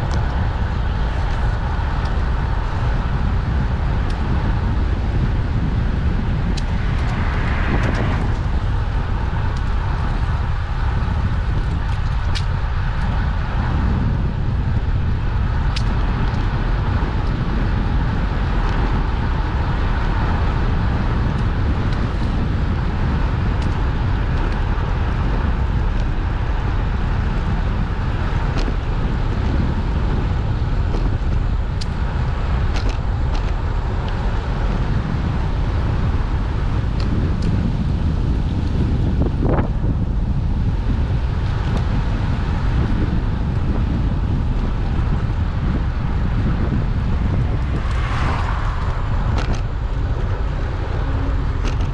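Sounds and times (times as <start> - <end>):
wind rushing over microphone: 0.0 - 51.9
light clicks and rattles: 51.6 - 51.9.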